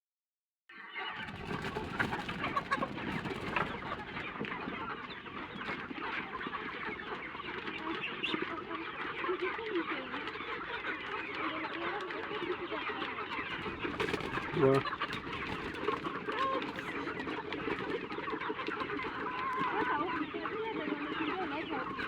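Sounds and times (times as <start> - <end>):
chickens clucking: 0.7 - 22.0.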